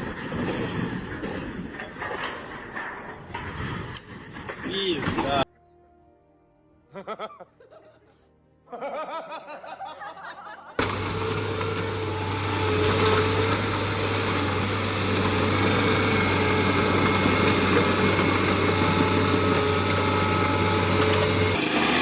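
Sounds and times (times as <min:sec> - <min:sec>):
vehicle engine running: 0:10.8 - 0:22.0.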